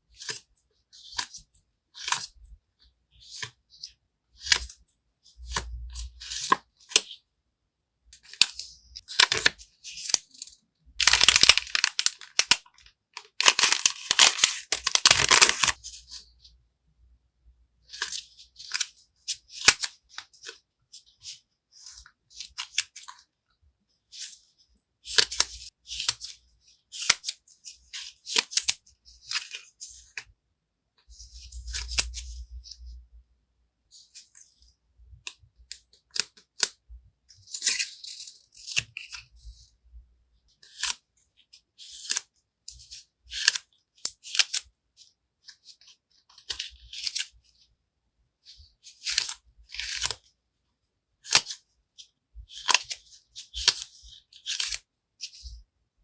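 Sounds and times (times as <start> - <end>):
packaging rustling: 11.0 - 12.6, 13.2 - 15.8.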